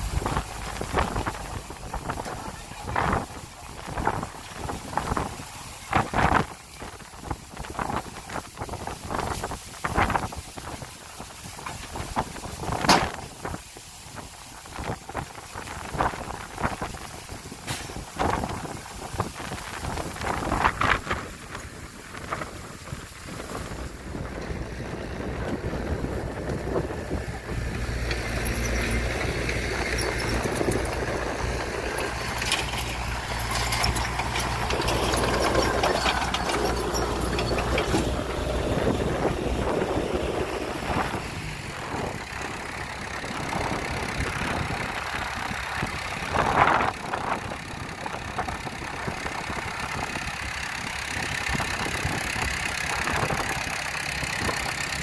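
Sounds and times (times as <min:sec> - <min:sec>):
diesel machinery engine drone: 0:00.0 - 0:55.0
mechanical clatter: 0:28.1 - 0:38.9.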